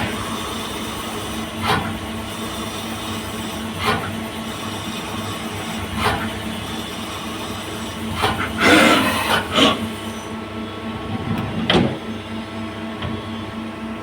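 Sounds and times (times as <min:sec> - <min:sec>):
lathe machine hum: 0:00.0 - 0:14.0.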